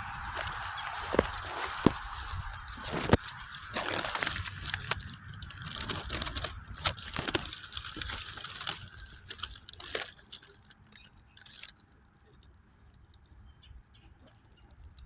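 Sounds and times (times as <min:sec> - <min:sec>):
dry leaves crunching: 0:00.0 - 0:10.7.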